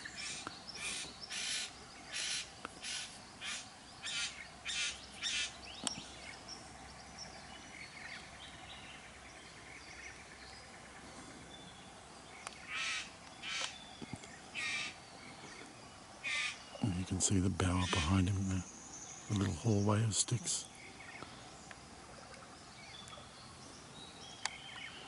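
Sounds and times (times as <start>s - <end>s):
bowerbird harsh rasping calls: 0.0s - 5.6s, 12.6s - 13.8s, 14.5s - 15.0s, 16.2s - 16.7s.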